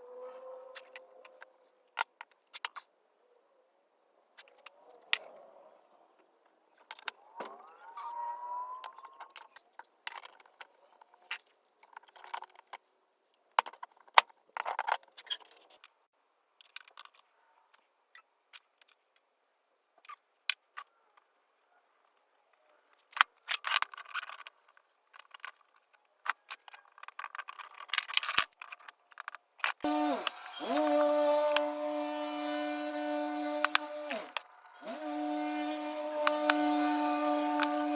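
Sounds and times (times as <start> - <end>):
small hard objects clicking and rattling: 22.9 - 37.9.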